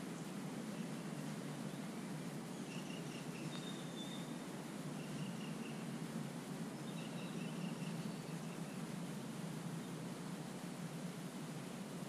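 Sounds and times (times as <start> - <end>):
low background rumble: 0.0 - 12.0
faint thin bird calls: 2.5 - 5.9.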